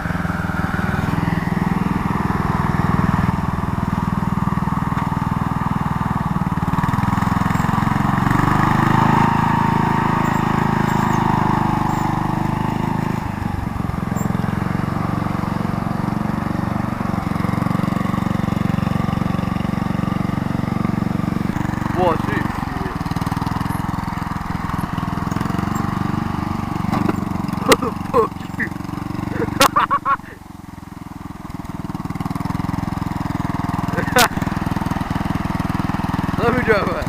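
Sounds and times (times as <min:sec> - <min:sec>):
mower truck engine running: 0:00.0 - 0:37.0.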